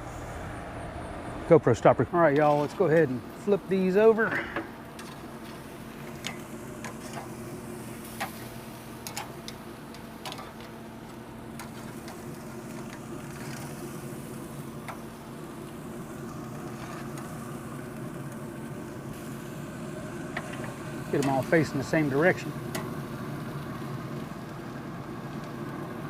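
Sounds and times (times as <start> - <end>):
steady low hum: 0.0 - 26.0
tongs clicking on grill grate: 9.0 - 10.7.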